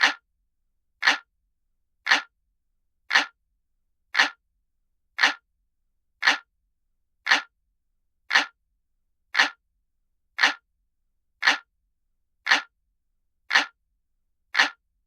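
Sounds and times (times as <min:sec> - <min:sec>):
clock ticking: 0:00.0 - 0:00.2, 0:01.0 - 0:01.3, 0:02.1 - 0:02.3, 0:03.1 - 0:03.4, 0:04.2 - 0:04.4, 0:05.2 - 0:05.4, 0:06.2 - 0:06.5, 0:07.3 - 0:07.5, 0:08.3 - 0:08.6, 0:09.4 - 0:09.6, 0:10.4 - 0:10.6, 0:11.4 - 0:11.7, 0:12.5 - 0:12.7, 0:13.5 - 0:13.8, 0:14.5 - 0:14.8.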